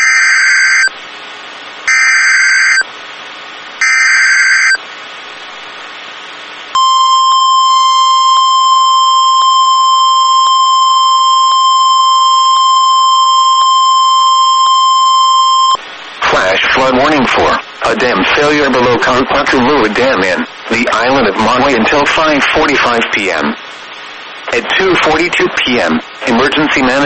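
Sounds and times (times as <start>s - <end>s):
steady warning alarm tone: 1.9s - 2.8s, 3.8s - 4.8s, 6.8s - 15.8s
screeching digital data bursts: 6.8s - 15.8s.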